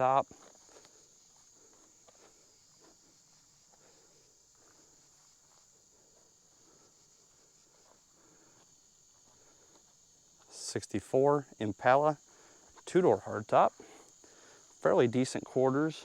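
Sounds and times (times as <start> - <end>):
soft footsteps: 0.1 - 10.6.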